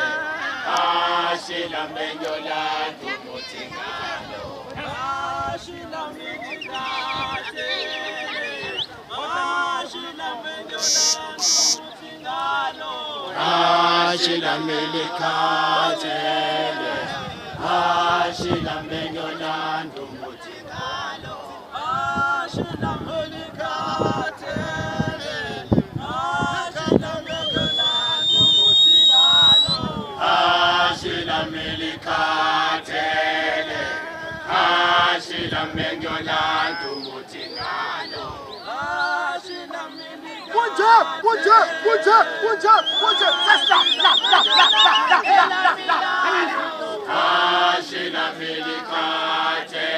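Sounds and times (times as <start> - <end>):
group singing unaccompanied chant: 0.0 - 49.9
short high calls: 6.3 - 9.0, 10.7 - 12.0, 27.4 - 29.8, 42.0 - 45.4.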